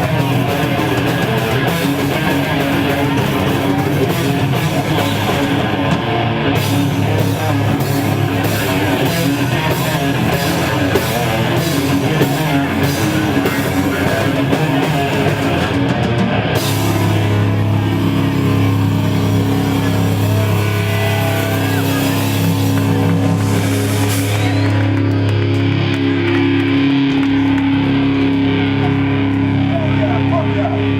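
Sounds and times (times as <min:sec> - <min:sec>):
distorted electric guitar riffing: 0:00.0 - 0:30.9
drums: 0:00.0 - 0:30.9
ringing guitar chord: 0:00.0 - 0:30.9
cymbal crashes: 0:16.7 - 0:25.3.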